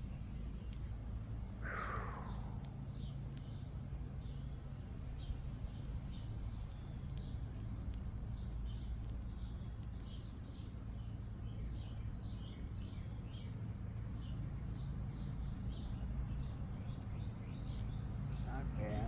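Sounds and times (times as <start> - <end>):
burning twigs crackling: 0.0 - 19.0
low hum: 1.5 - 3.2
small bird chirping: 1.6 - 4.5.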